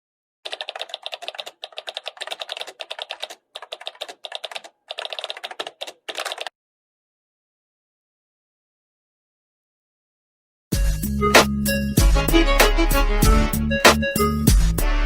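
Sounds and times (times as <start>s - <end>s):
keyboard typing: 0.4s - 6.5s.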